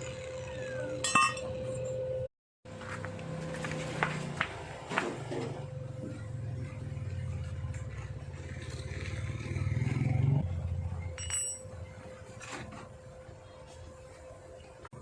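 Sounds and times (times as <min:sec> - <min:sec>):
small motorcycle engine revving: 0:05.5 - 0:11.0.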